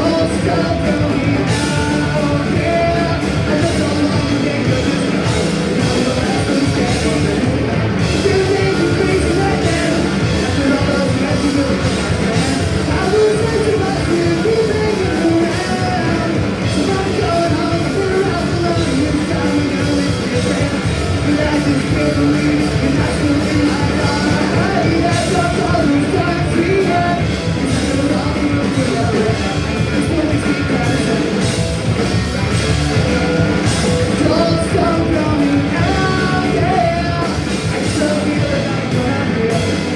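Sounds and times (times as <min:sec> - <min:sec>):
live punk rock band: 0:00.0 - 0:39.9
person singing: 0:00.0 - 0:39.9.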